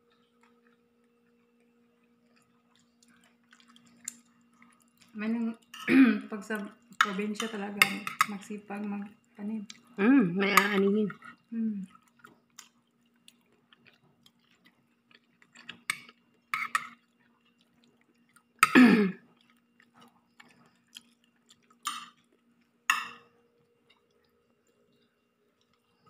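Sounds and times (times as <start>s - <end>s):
faint low hum: 0.0s - 26.0s
chewing and lip smacks: 0.1s - 5.8s, 11.1s - 18.6s, 19.3s - 22.8s.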